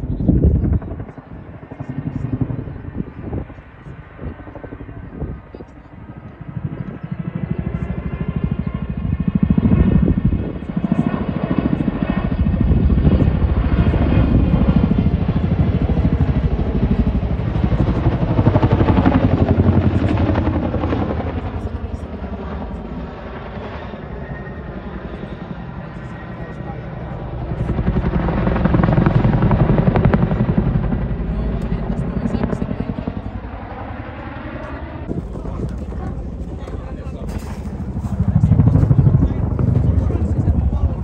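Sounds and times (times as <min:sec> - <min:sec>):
helicopter rotors beating: 0:00.0 - 0:41.0.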